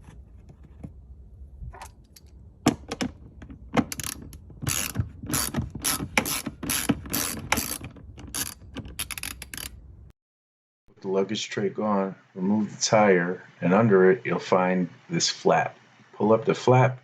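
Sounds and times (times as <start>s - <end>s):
hand ratchet clicking: 3.9s - 9.7s.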